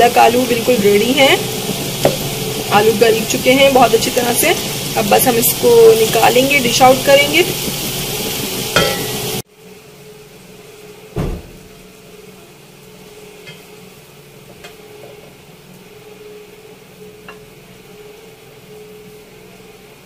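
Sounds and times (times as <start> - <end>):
low steady hum: 0.0 - 20.0
vegetables sizzling in a pan: 0.0 - 20.0
thump: 11.2 - 11.8.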